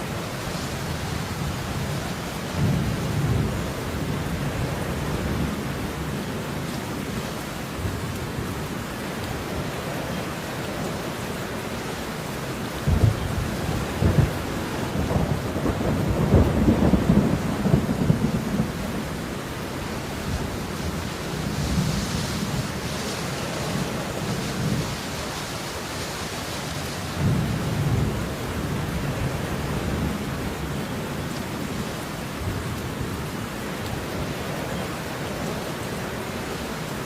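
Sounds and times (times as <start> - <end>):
steady rainfall: 0.0 - 37.0.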